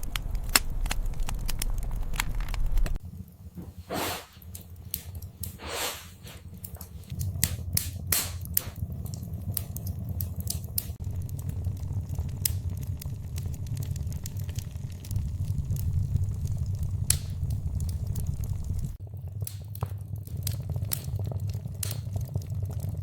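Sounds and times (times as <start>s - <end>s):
wood fire crackling: 0.0s - 23.0s.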